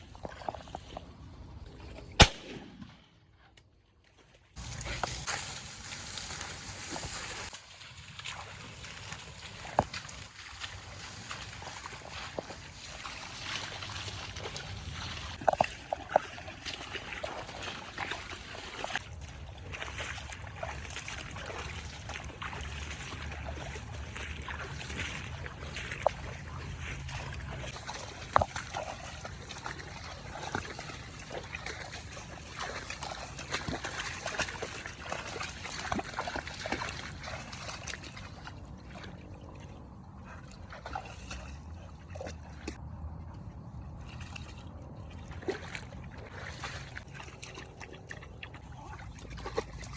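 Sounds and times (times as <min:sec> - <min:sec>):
water sloshing and trickling: 0:00.0 - 0:49.9.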